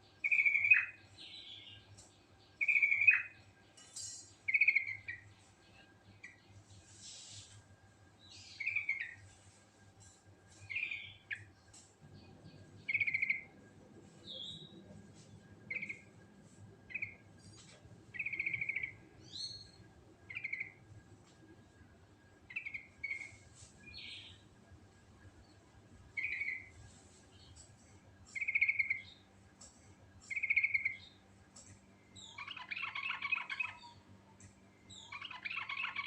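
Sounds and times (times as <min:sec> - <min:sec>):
bulbul singing with trills: 0:00.0 - 0:06.6, 0:08.2 - 0:09.3, 0:10.0 - 0:14.9, 0:15.6 - 0:16.2, 0:16.8 - 0:20.8, 0:26.1 - 0:29.3, 0:30.2 - 0:36.0.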